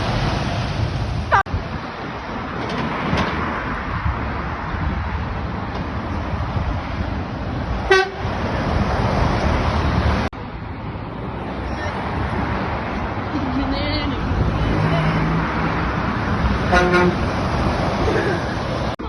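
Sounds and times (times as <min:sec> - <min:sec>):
road traffic passing: 0:00.0 - 0:19.0
vehicle horn toot: 0:07.9 - 0:08.2, 0:16.7 - 0:17.2.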